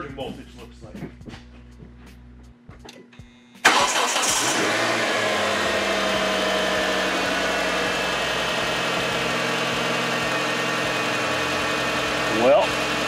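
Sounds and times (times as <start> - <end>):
car engine idling: 3.6 - 13.0
car starter motor: 3.6 - 13.0.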